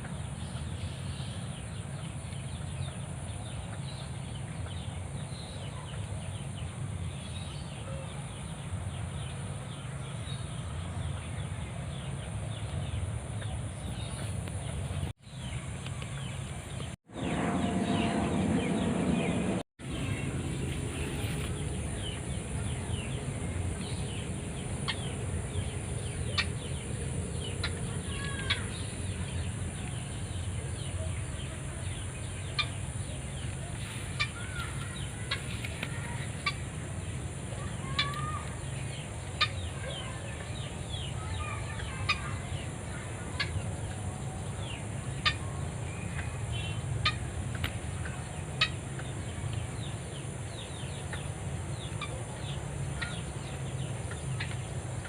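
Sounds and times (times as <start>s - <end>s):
birds clucking and chirping: 11.0s - 55.0s
low rumble: 13.9s - 37.5s.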